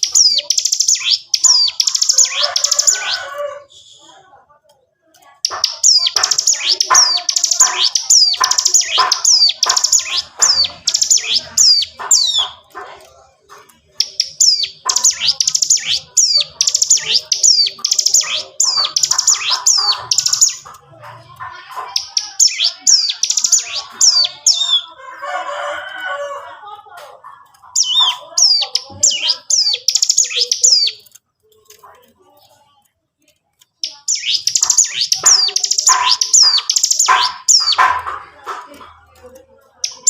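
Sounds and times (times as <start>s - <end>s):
bird singing high sweeping notes: 33.8s - 37.8s.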